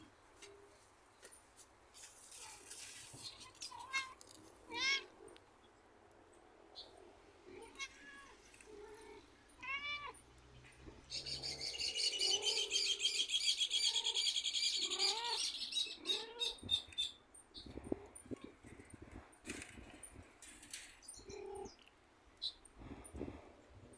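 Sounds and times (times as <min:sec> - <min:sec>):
rapid bird twittering song: 0:11.0 - 0:19.0.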